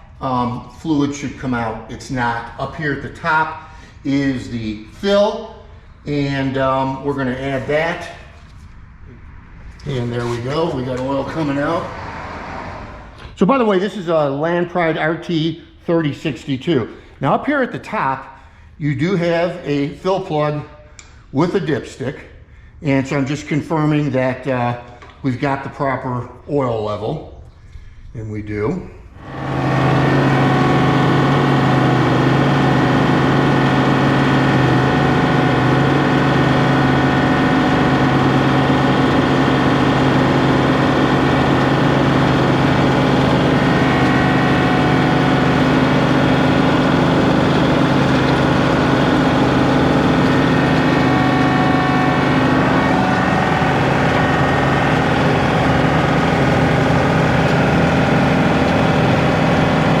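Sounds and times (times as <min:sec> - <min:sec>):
tractor diesel engine running: 0:29.2 - 1:00.0.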